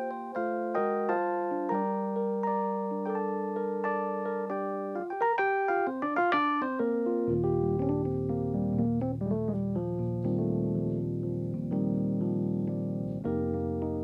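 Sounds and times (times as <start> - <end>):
piano chords: 0.0 - 14.0
deep bass piano notes: 7.3 - 14.0.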